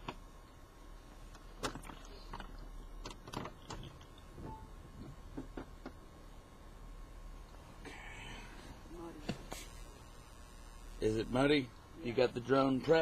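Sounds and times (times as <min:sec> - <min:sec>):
low steady hum: 0:00.0 - 0:13.0
faint clicks and knocks: 0:01.2 - 0:06.0.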